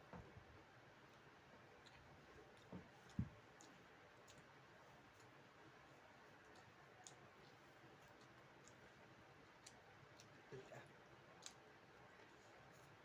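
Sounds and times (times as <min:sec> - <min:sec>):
person chewing food: 0:02.6 - 0:10.5.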